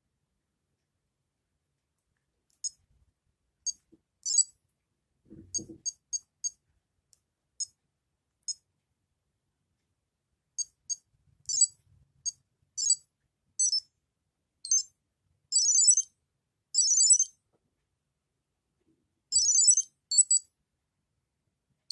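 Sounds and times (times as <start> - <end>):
toy short high beeps: 13.6 - 13.8, 15.6 - 16.1, 16.8 - 17.3, 19.3 - 20.4.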